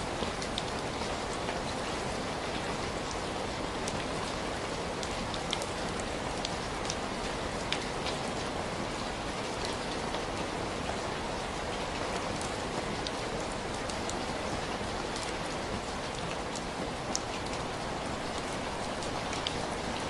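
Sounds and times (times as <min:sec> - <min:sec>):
sharp rain ticks: 0:00.0 - 0:20.0
steady rain hiss: 0:00.0 - 0:20.0.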